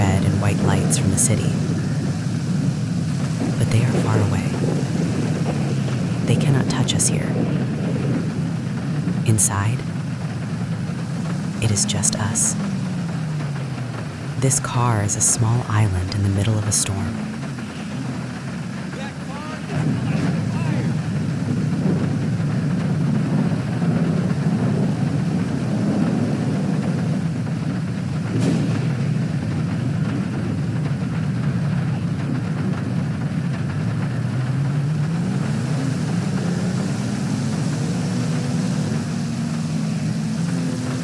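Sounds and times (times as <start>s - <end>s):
heavy rain hiss: 0.0s - 41.0s
car rumble inside cabin: 16.9s - 41.0s.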